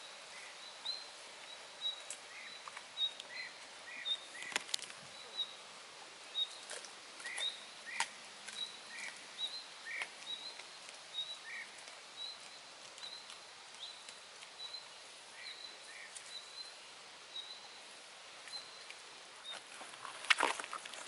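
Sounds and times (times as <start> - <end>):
small bird chirping: 6.3 - 17.8, 18.4 - 19.7.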